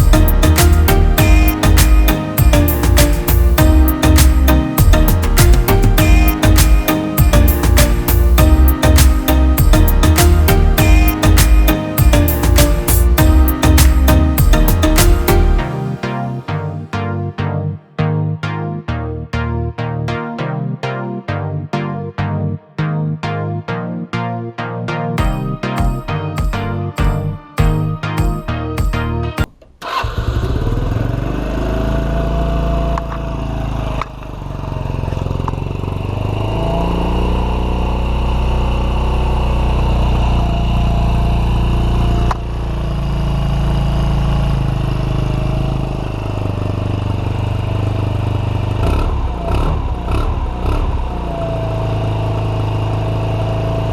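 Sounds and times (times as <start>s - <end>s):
music playing: 0.0s - 29.5s
scooter engine starting and running: 29.4s - 53.9s.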